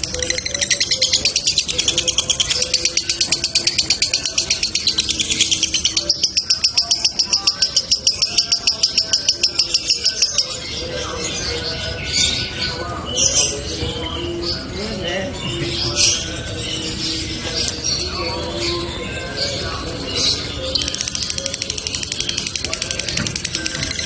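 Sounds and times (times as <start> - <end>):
lovebird chattering trill: 0.0 - 10.6.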